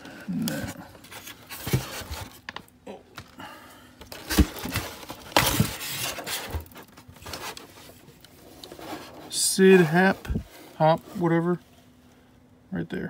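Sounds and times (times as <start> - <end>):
styrofoam rubbing and scraping: 4.4 - 11.6.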